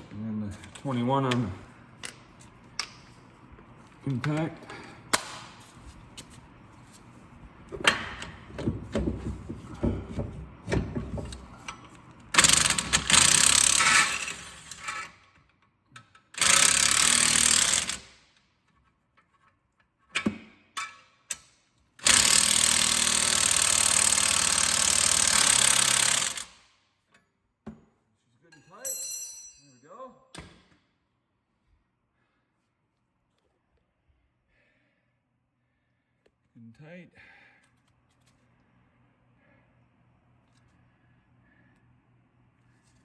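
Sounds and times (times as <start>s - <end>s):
impact wrench hammering: 5.1s - 5.6s, 22.0s - 26.6s.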